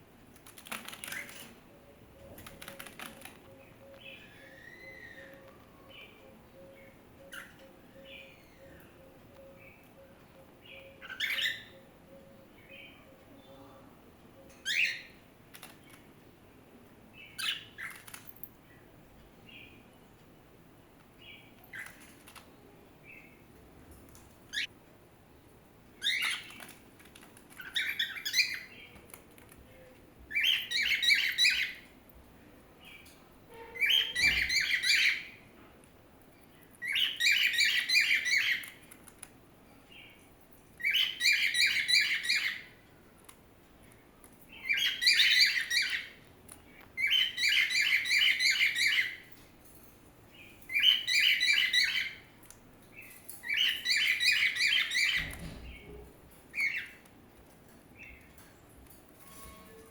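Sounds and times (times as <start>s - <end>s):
small birds twittering: 0.5s - 16.1s, 21.2s - 23.5s, 24.5s - 32.0s, 36.3s - 38.9s, 39.7s - 42.8s, 43.8s - 49.4s, 50.3s - 57.0s.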